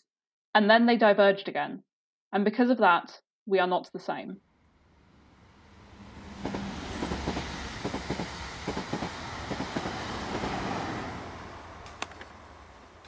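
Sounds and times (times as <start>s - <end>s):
train rumbling along track: 5.4s - 13.0s.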